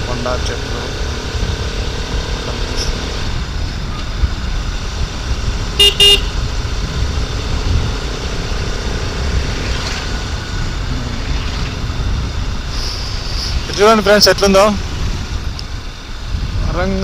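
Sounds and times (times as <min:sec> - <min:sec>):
wind and motorcycle road rumble: 0:00.0 - 0:17.0
vehicle horn beeps: 0:05.8 - 0:06.4.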